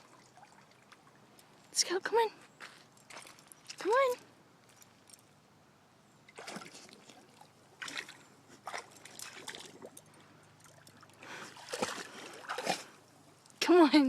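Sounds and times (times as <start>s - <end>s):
dog splashing in water: 6.3s - 10.0s, 10.6s - 13.0s.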